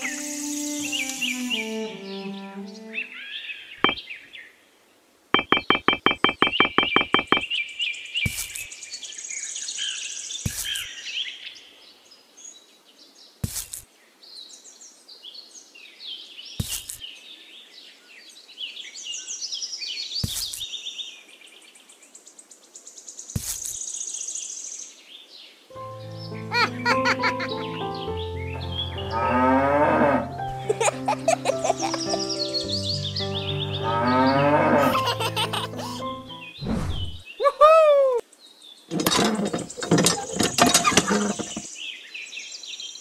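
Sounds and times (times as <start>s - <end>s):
birds chirping and trilling: 0.0s - 4.6s, 5.4s - 13.3s, 14.4s - 37.5s, 38.3s - 43.0s
sharp knock: 5.4s - 7.4s.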